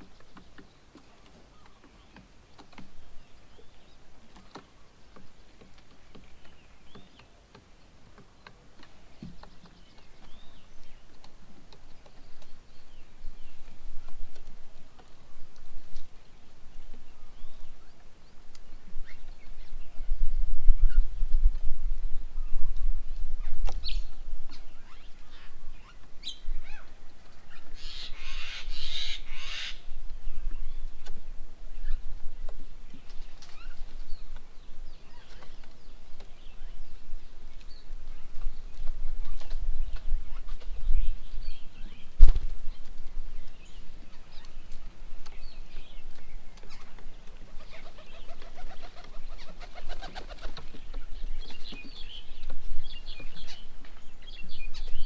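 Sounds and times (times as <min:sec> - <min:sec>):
harsh chattering bird calls: 0:27.5 - 0:29.8, 0:45.4 - 0:53.7
bird wingbeats: 0:44.7 - 0:52.0.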